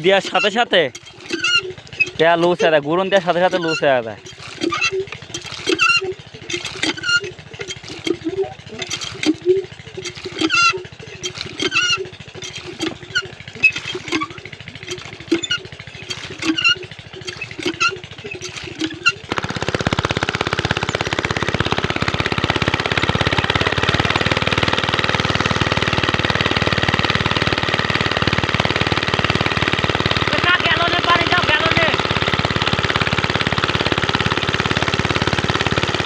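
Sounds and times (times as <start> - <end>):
diesel water pump engine knocking: 0.0 - 36.0.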